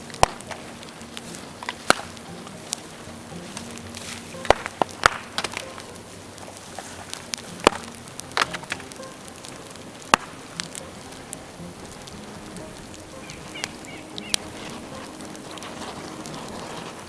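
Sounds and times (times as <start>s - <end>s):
bamboo crackling in a bonfire: 0.0s - 17.0s.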